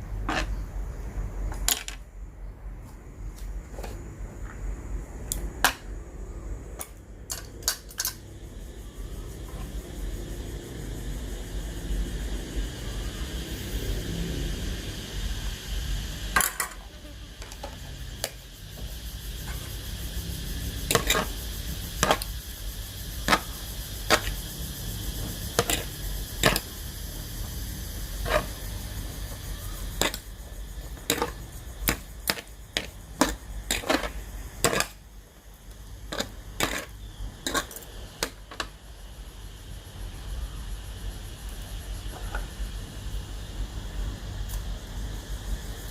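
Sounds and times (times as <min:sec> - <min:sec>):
utensils and dishes clicking: 0:07.3 - 0:08.2.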